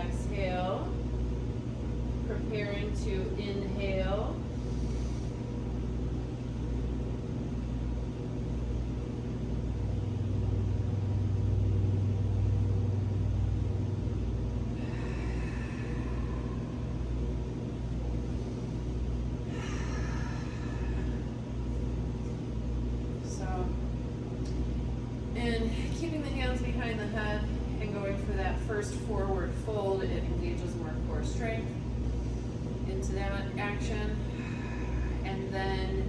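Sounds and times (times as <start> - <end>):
low rumble with hum: 0.0 - 36.0
faint breaths: 4.4 - 5.9, 14.5 - 22.4, 33.4 - 36.0.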